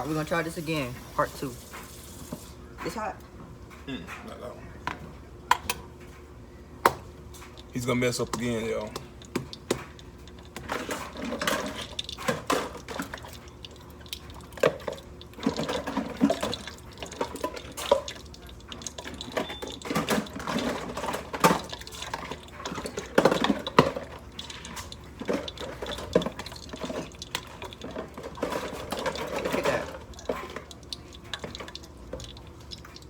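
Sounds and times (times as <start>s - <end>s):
utensils and dishes clinking: 7.3s - 33.0s.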